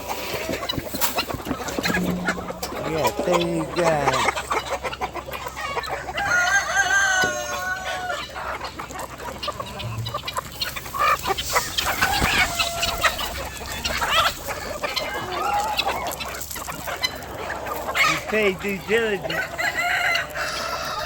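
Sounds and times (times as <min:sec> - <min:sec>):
chickens clucking: 0:00.0 - 0:21.0
rooster crowing: 0:06.2 - 0:08.2, 0:19.4 - 0:21.0.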